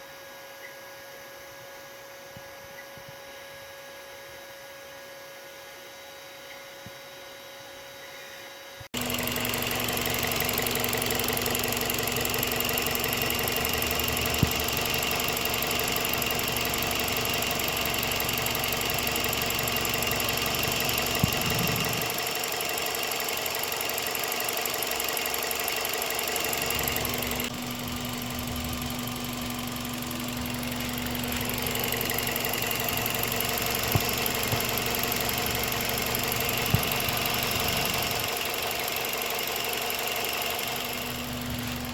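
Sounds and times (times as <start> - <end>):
car engine idling: 9.0 - 41.9.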